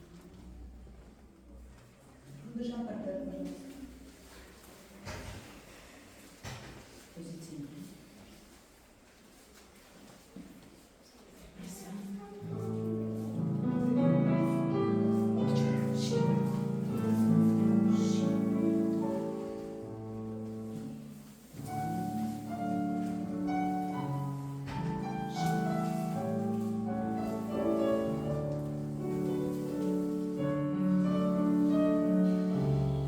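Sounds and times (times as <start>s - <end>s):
classical piano music: 12.3s - 33.0s.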